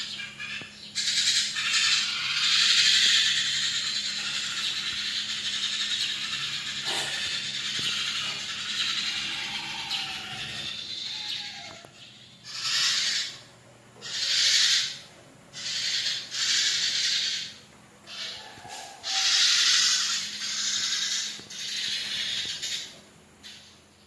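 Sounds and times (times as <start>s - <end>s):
birds calling in hissy bursts: 0.0s - 23.7s.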